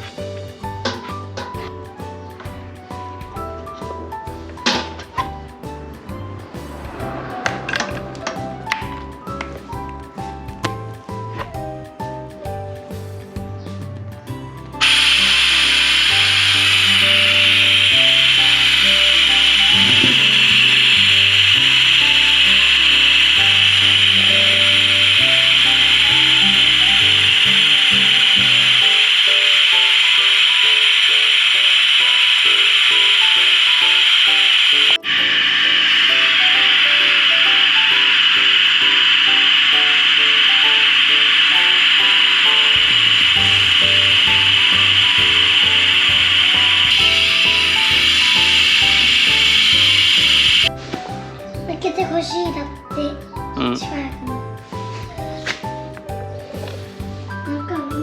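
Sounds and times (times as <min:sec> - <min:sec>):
low stepped background music: 0:00.0 - 0:58.0
pulsing bass line: 0:13.4 - 0:29.3, 0:41.7 - 0:50.7
steady rasping hiss: 0:14.8 - 0:50.8.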